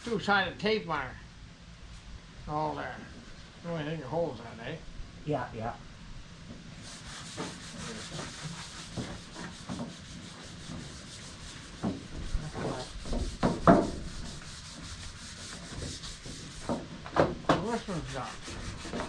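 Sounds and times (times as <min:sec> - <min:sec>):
sandpaper rubbing strokes: 0:06.8 - 0:16.8, 0:17.6 - 0:19.0.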